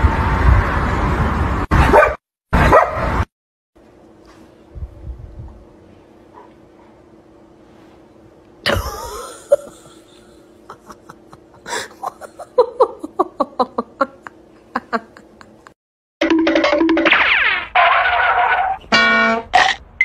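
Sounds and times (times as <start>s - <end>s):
person laughing: 8.6s - 15.8s.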